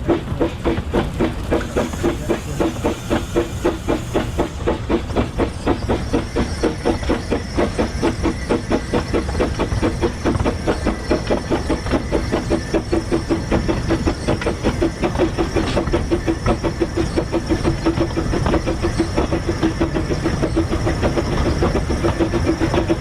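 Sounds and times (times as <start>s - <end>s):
hiss of steam: 0.0s - 10.2s
steam locomotive exhaust beats: 0.0s - 23.0s.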